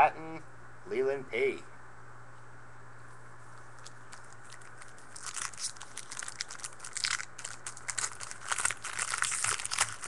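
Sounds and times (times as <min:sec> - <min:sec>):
low steady hum: 0:00.0 - 0:10.0
foil wrapper tearing and crinkling: 0:04.1 - 0:10.0.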